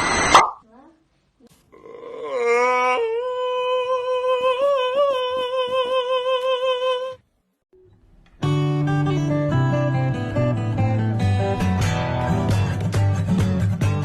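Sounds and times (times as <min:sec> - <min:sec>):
person humming a long note: 0:01.8 - 0:07.2
strummed acoustic guitar: 0:08.4 - 0:14.0.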